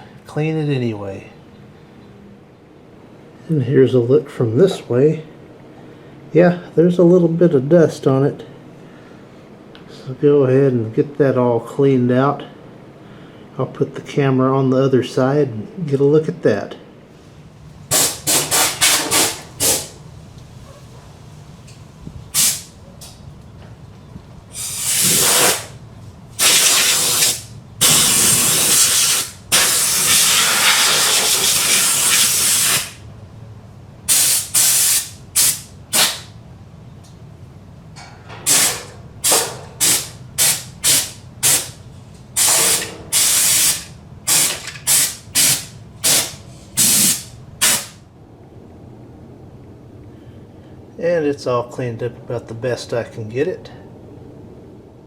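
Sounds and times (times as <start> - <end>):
air blow gun hissing: 17.9 - 20.0, 22.3 - 22.8, 24.5 - 25.8, 26.4 - 33.0, 34.1 - 36.3, 38.5 - 41.8, 42.4 - 48.0.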